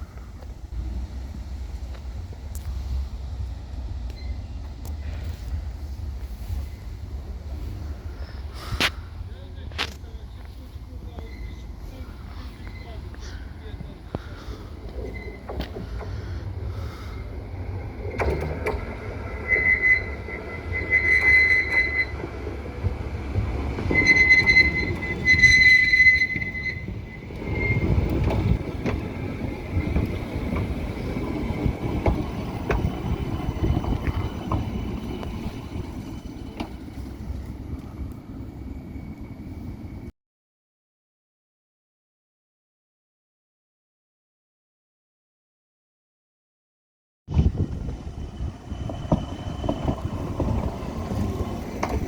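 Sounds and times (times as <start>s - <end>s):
rumble of wheels on rail: 0.0s - 40.1s, 47.3s - 52.0s
tram wheels squealing on rails: 0.0s - 40.1s, 47.3s - 52.0s.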